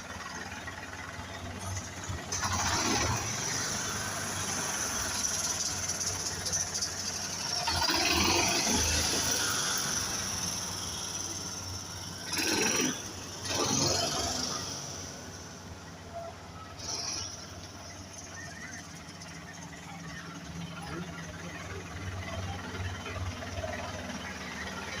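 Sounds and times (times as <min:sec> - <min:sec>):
garbage truck engine: 0:00.0 - 0:25.0
loud noisy bursts: 0:01.6 - 0:15.7.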